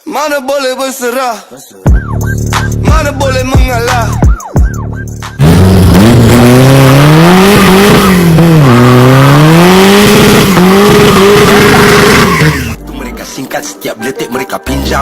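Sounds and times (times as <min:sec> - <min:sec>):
truck engine revving loudly: 0:05.2 - 0:12.8.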